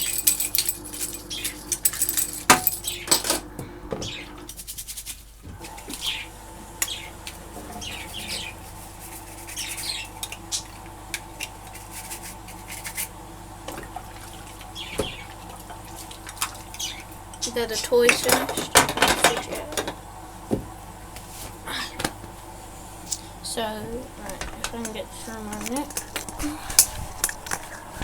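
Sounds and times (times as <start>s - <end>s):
budgies chirping: 4.0s - 4.3s, 6.0s - 10.8s, 14.3s - 15.5s, 16.7s - 17.7s.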